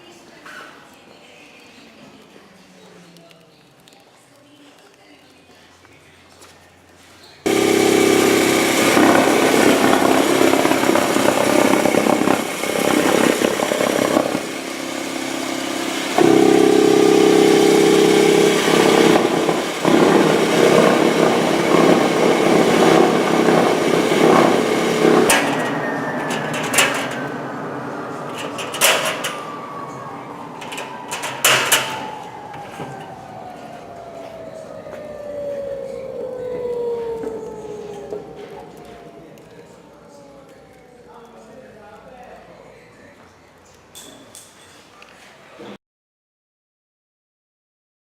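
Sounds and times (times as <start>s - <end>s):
vacuum cleaner running: 7.5s - 40.7s.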